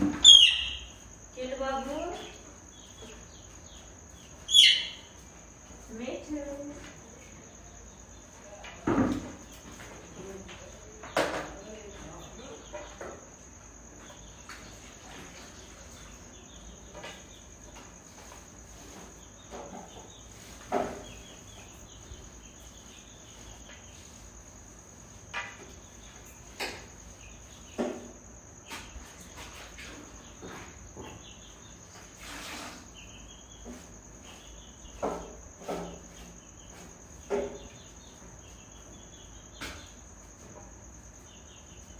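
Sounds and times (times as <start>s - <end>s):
insect chirring: 0.0s - 41.9s.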